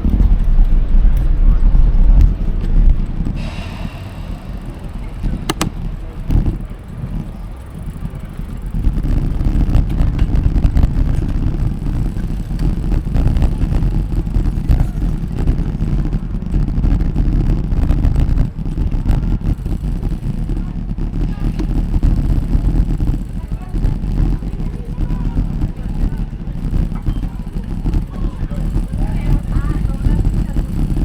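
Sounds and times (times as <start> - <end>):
wind buffeting microphone: 0.0 - 31.0
sharp click: 3.3 - 6.6.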